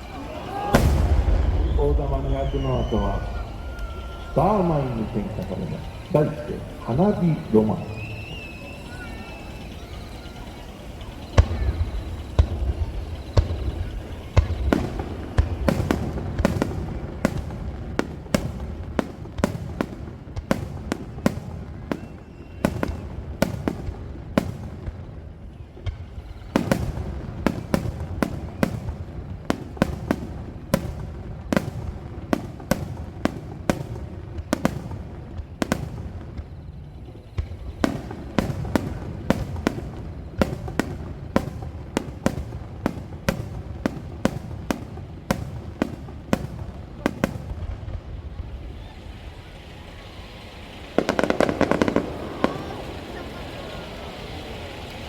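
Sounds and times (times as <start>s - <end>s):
fireworks launching and bursting: 0.0s - 55.0s.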